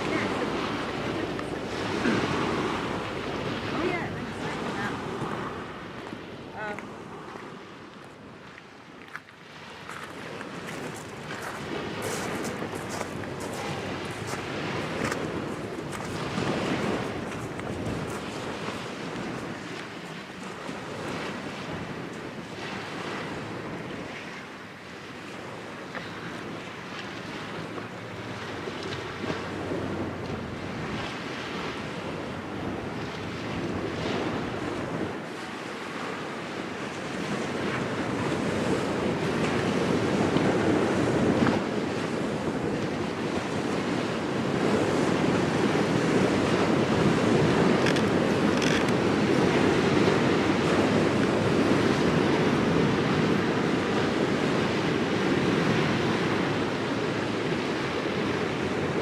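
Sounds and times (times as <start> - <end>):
small waves washing onto shore: 0.0 - 59.0
wind on microphone: 0.0 - 59.0.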